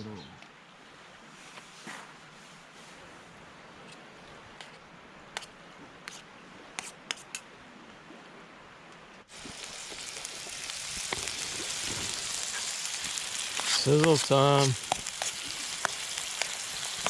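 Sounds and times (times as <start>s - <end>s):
food sizzling in a pan: 9.3s - 17.0s.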